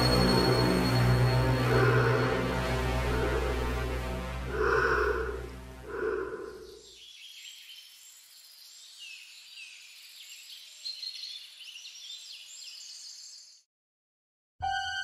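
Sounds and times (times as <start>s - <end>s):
birds singing and chirping: 4.5s - 13.6s.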